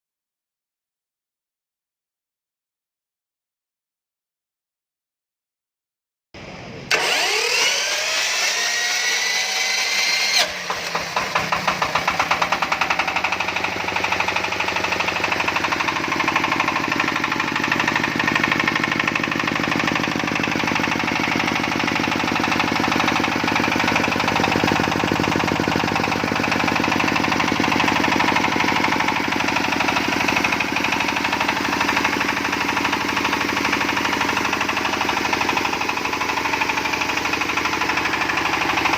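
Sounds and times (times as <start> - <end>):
starter motor whining: 6.9 - 38.9
diesel engine chugging: 10.4 - 38.9.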